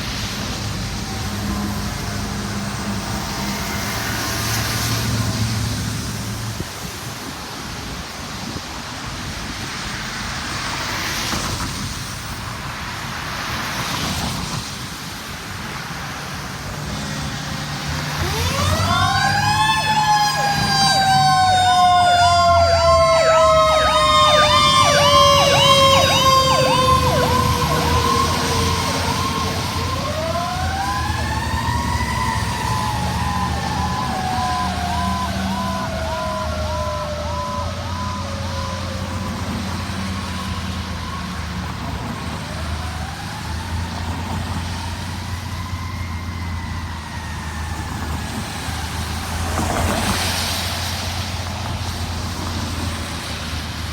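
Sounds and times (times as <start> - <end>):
emergency siren wail: 0.0 - 6.2, 16.6 - 53.3
heavy truck engine rumble: 0.0 - 53.9
road and traffic noise: 0.0 - 53.9
siren fast yelp: 18.1 - 39.3.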